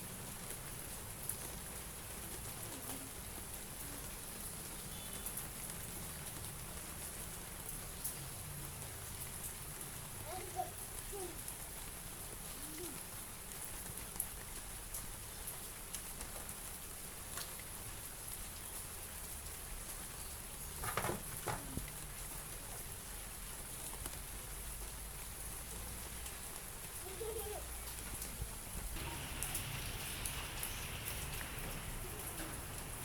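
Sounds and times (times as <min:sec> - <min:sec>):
louder knocks: 0:20.8 - 0:21.7.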